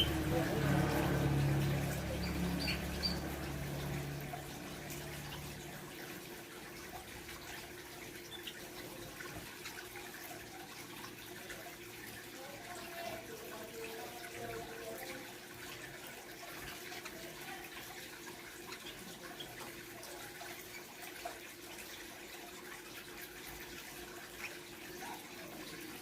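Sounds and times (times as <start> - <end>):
trickle of running water: 0.0 - 26.0
faint bird chirps: 2.1 - 3.4.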